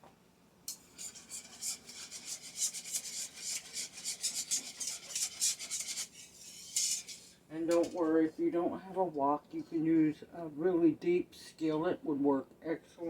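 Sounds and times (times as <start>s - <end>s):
kitchen utensil scraping: 0.7s - 8.2s.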